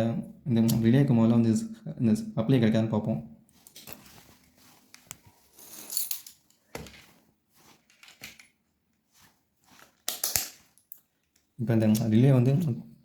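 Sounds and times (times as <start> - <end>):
rustling: 3.5 - 10.8.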